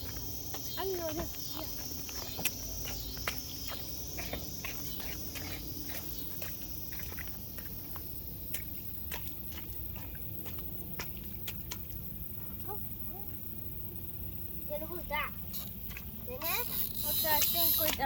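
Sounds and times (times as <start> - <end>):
footsteps: 0.0 - 12.5.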